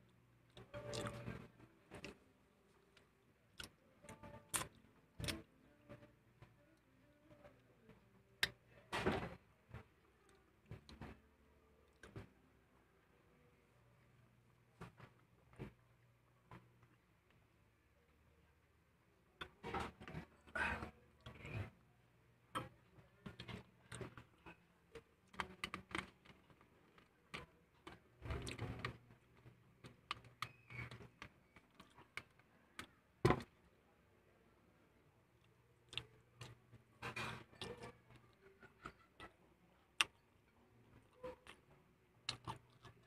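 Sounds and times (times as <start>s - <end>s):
person chewing food: 0.5s - 2.2s, 2.9s - 5.5s, 25.2s - 33.0s, 35.4s - 40.4s, 41.0s - 43.0s
lip smacks and mouth clicks: 42.2s - 43.0s.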